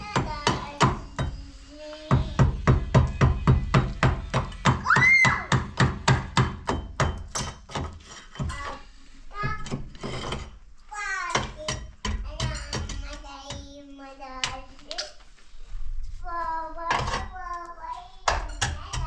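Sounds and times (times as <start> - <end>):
rapid hammer strikes: 2.0 - 8.5.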